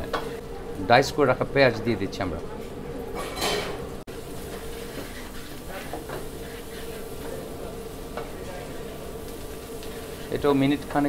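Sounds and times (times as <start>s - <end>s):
spatula stirring: 4.1s - 11.0s
vegetables sizzling in oil: 4.1s - 11.0s.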